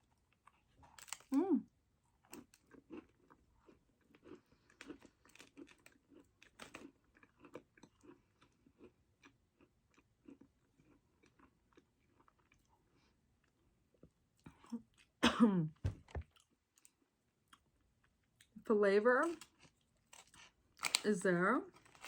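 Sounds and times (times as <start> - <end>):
person crunching hard cookie: 2.2 - 12.7, 19.4 - 21.0.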